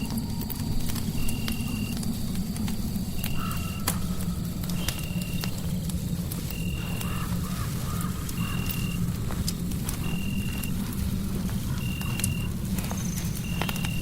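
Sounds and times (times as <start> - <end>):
fireplace crackling: 0.0 - 14.0
low rumble: 0.0 - 14.0
faint wavering calls: 3.1 - 5.6, 6.4 - 14.0.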